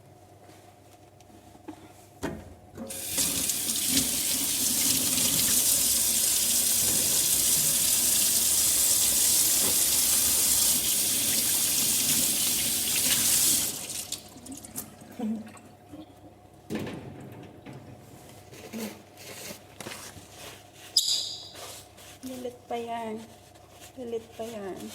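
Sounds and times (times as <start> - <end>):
tap water running into sink: 2.9 - 14.9.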